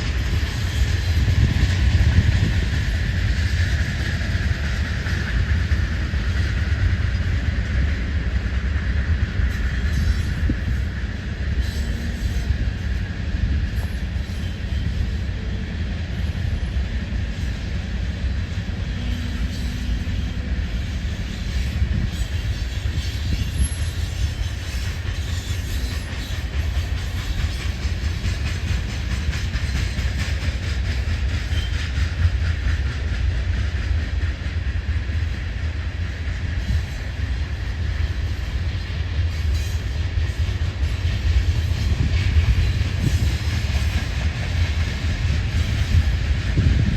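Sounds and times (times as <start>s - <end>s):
freight train rumbling past: 0.0s - 46.9s
wheels clicking over rail joints: 0.0s - 46.9s.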